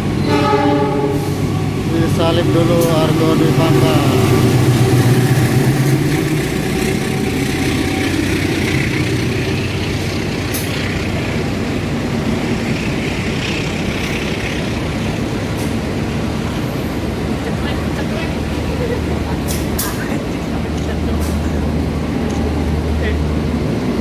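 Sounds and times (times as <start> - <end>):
train wheels rumbling on rail: 0.0 - 24.0
low hum: 1.3 - 15.1.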